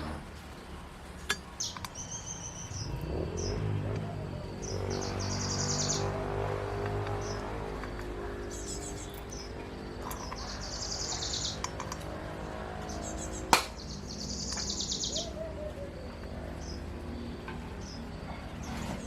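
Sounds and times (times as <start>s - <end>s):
bird calling in high trills: 13.0s - 16.9s
sharp knock: 13.6s - 13.8s.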